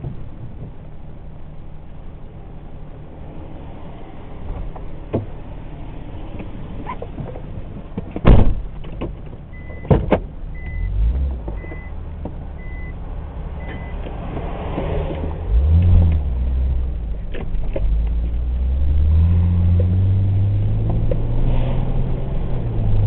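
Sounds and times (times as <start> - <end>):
loud thumps: 8.0 - 10.3
car warning chime beeping: 9.5 - 11.0, 11.6 - 12.0, 12.6 - 13.0, 13.6 - 14.0.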